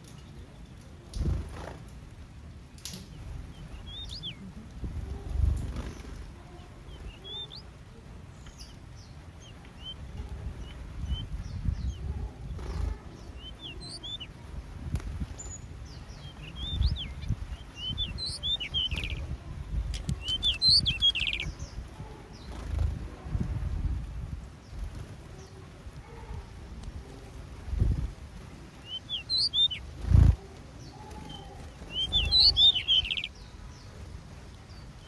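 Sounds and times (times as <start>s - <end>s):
small birds chirping: 0.0s - 35.0s
sharp clicks: 19.9s - 21.4s.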